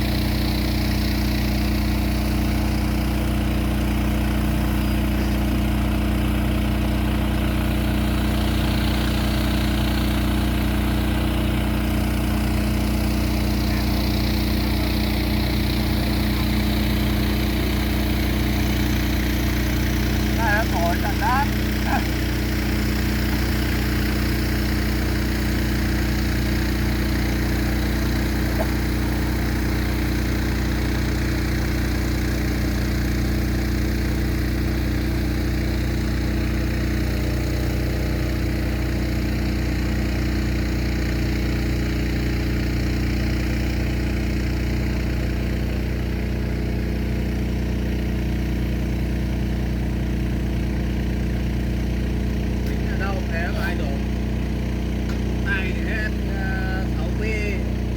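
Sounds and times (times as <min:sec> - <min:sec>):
machine hum: 0:10.0 - 0:38.8.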